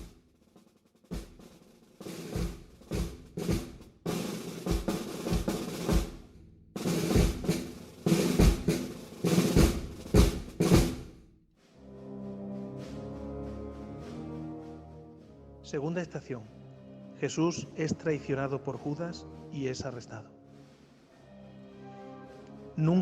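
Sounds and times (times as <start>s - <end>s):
snare drum rolls: 0.0s - 11.2s
bass drum strokes: 2.2s - 11.1s.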